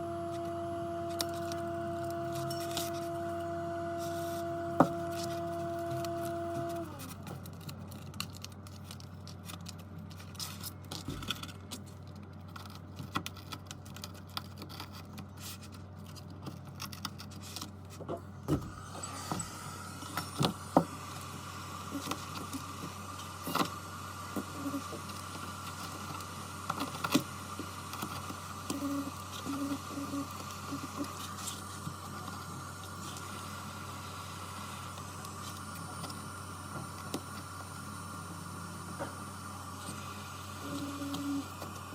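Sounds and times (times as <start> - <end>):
electrical machine hum: 0.0 - 41.9
higher steady hum: 18.1 - 41.9.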